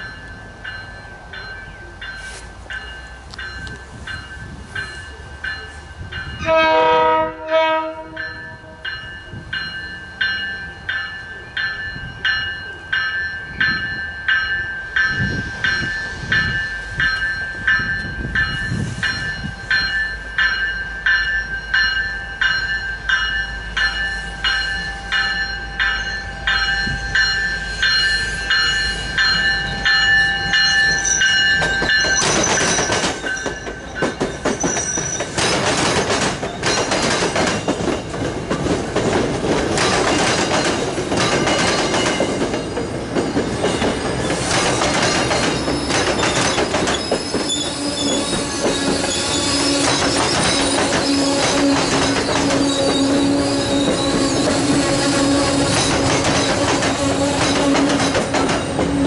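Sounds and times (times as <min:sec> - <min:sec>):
train wheels rushing on rails: 0:00.0 - 0:59.0
bell ringing: 0:08.2 - 0:35.4
high wheel squeal: 0:26.9 - 0:35.6, 0:42.6 - 0:58.9
wheels clicking over rail joints: 0:28.5 - 0:59.0.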